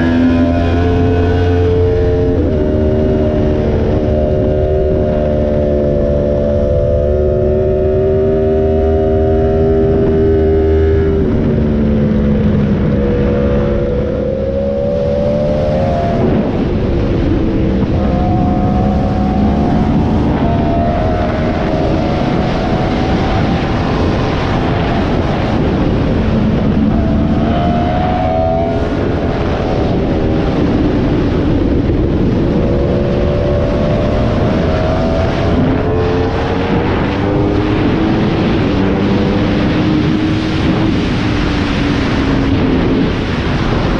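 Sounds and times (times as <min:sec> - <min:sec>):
motorcycle engine at speed: 0:00.0 - 0:43.9
wind rush: 0:00.0 - 0:43.9.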